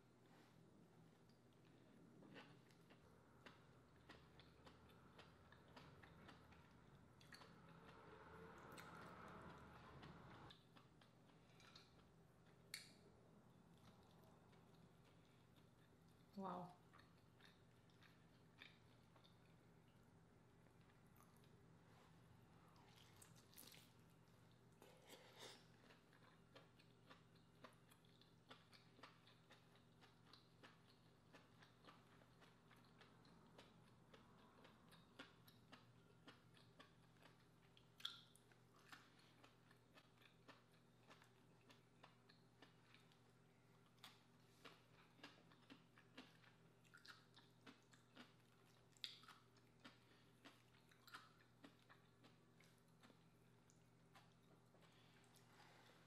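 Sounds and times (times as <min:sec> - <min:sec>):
low steady hum: 0:00.0 - 0:56.0
chewing with wet mouth clicks: 0:01.3 - 0:13.0, 0:13.7 - 0:20.0, 0:22.8 - 0:55.8.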